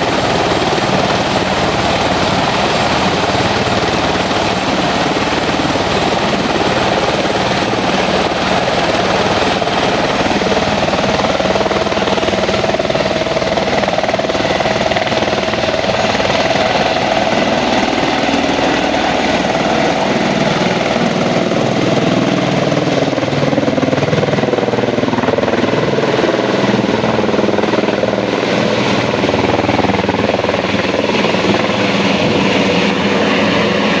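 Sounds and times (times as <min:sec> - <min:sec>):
helicopter rotor and engine: 0:00.0 - 0:34.0.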